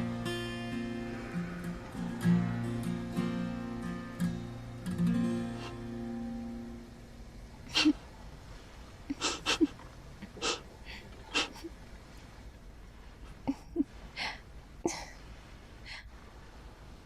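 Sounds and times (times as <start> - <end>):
woman giggling through nose: 9.1 - 10.6.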